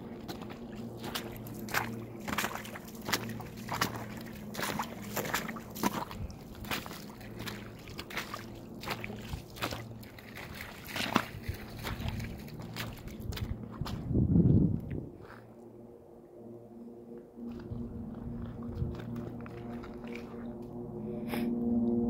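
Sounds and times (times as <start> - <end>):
footsteps crunching in snow: 0.0 - 14.6
low rumble: 10.9 - 22.0.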